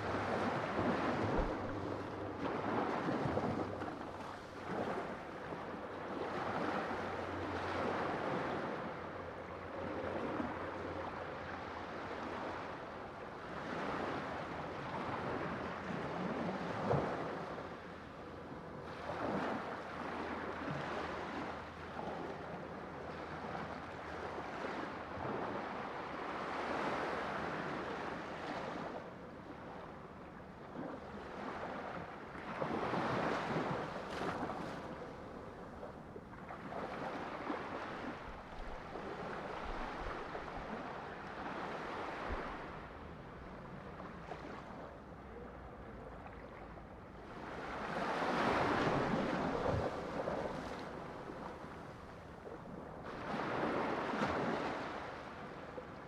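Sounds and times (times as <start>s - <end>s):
sea waves breaking: 0.0s - 9.1s, 30.6s - 45.1s, 46.2s - 56.0s.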